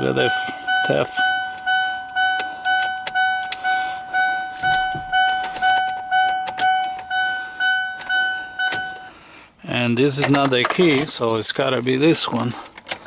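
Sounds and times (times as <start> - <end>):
car dashboard warning chime: 0.0 - 9.1.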